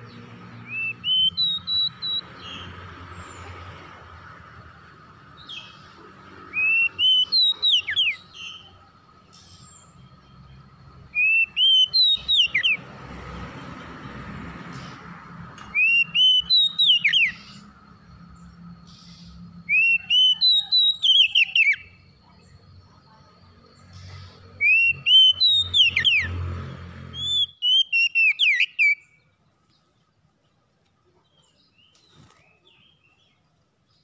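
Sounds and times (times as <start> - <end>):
bird singing whistled phrase: 0.7 - 2.2, 6.6 - 8.7, 11.2 - 12.8, 15.8 - 17.6, 19.0 - 22.0, 24.6 - 26.3, 27.2 - 29.1.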